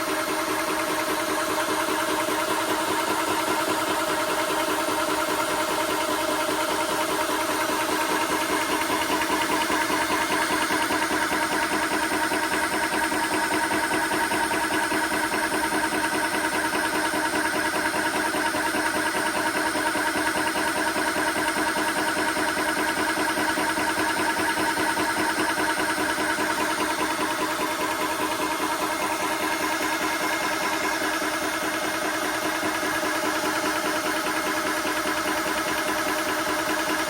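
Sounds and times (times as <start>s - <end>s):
air compressor chugging: 0.0s - 37.0s.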